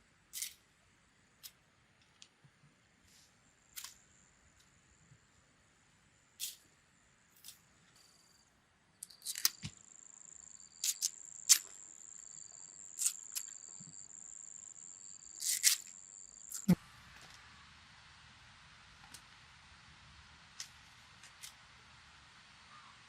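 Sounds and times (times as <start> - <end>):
sharp clicks and snaps: 9.0 - 9.8, 10.8 - 11.8, 13.0 - 13.6, 15.4 - 16.8
insect trilling: 9.0 - 16.8.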